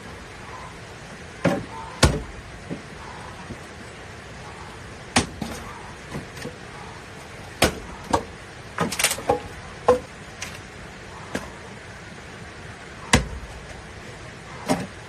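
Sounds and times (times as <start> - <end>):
blade chopping wood: 1.4 - 2.8, 5.1 - 6.4, 7.6 - 10.1, 13.1 - 13.4.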